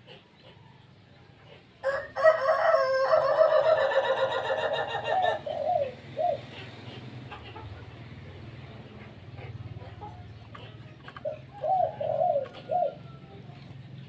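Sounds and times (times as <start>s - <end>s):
rooster crowing: 1.8s - 5.4s.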